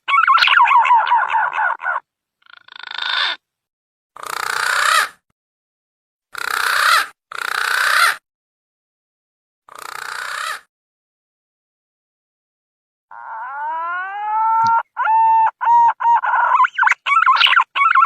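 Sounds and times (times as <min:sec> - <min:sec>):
hoarse wavering pigeon lure call: 0:00.1 - 0:01.9, 0:13.1 - 0:18.0.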